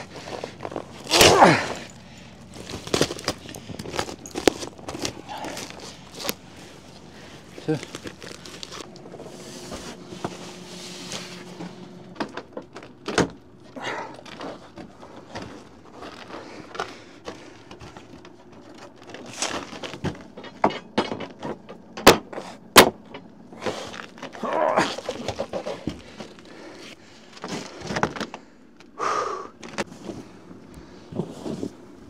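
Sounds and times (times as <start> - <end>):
rustling: 0.0 - 20.6, 29.6 - 32.0
handling knocks and clicks: 0.0 - 29.0.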